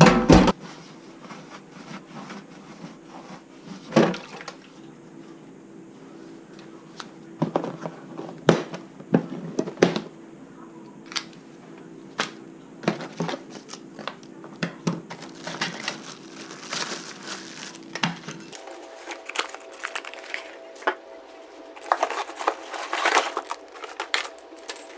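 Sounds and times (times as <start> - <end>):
small crackling sounds: 15.1 - 24.9
steady low hum: 18.6 - 24.9.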